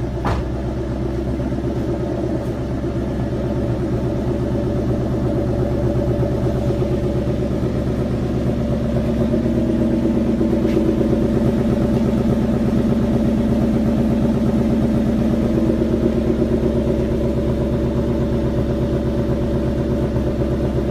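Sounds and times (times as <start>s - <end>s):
car engine idling: 0.0s - 20.9s.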